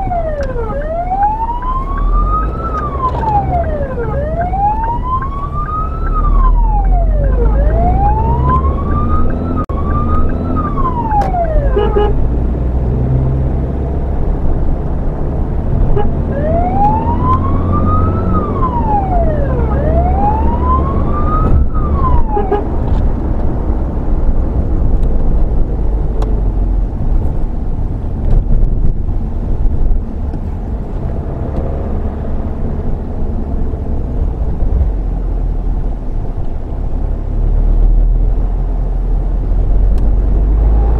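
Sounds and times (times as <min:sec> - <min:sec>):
wailing siren: 0:00.0 - 0:12.2, 0:16.0 - 0:22.8
engine and road rumble: 0:00.0 - 0:40.9.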